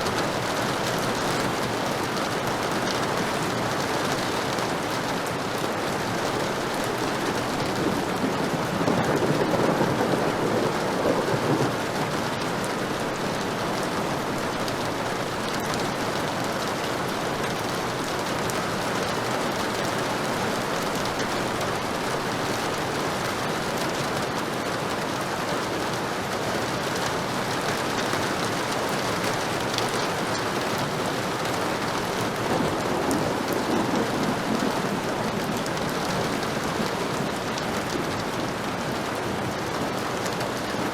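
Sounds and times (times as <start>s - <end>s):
heavy rain: 0.0s - 40.9s
low rolls of thunder: 7.4s - 13.4s, 32.0s - 38.7s.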